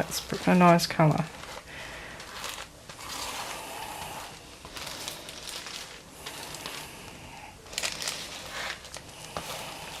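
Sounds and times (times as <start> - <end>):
paint scraping and swishing: 0.0 - 10.0
paper rustling: 0.0 - 10.0.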